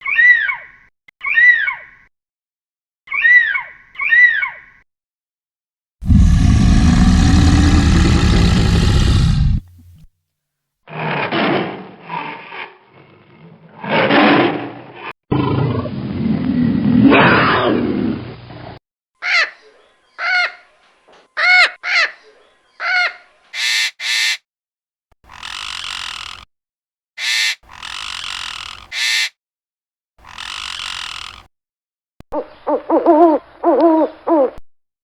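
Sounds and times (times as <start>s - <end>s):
breathy noisy bursts: 6.0s - 10.1s
long rough animal calls: 6.0s - 10.1s, 27.2s - 29.3s
short rising and falling calls: 23.6s - 24.4s, 28.9s - 29.3s.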